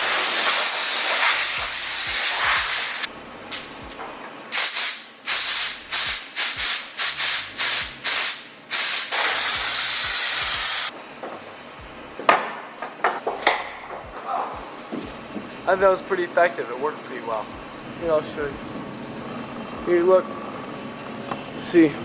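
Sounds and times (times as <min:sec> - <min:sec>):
compressed air hissing from nozzle: 0:00.0 - 0:03.1, 0:04.5 - 0:10.9.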